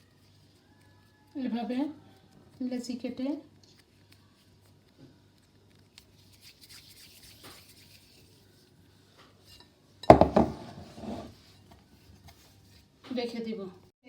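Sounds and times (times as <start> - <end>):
dish clattering on counter: 10.0 - 11.3.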